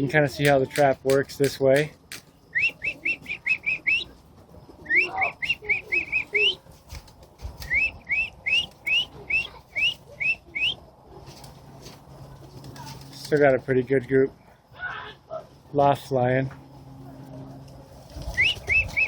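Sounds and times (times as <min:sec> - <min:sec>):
bird singing rising chirps: 0:02.5 - 0:04.1, 0:04.8 - 0:06.6, 0:07.6 - 0:10.8.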